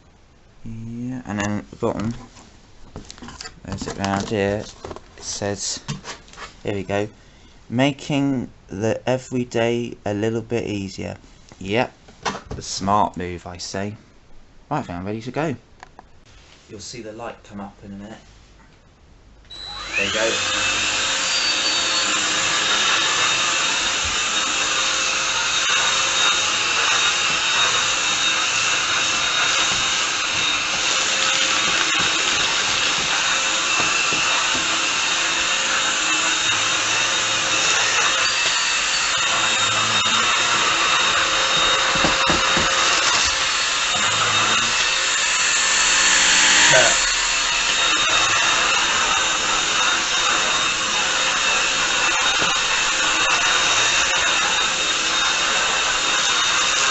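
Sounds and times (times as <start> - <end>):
stick vacuum cleaner whine: 19.5 - 56.9.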